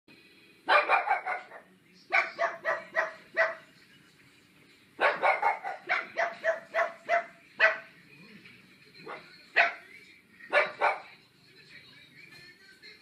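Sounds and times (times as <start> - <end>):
dogs barking: 0.6 - 3.8, 5.0 - 8.0, 9.0 - 9.9, 10.5 - 11.2.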